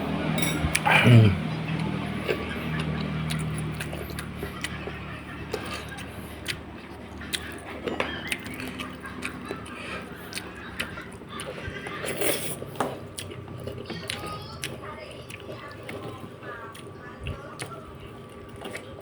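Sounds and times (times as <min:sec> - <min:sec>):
person chewing with wet lip smacks: 0:01.7 - 0:11.5, 0:13.2 - 0:16.1.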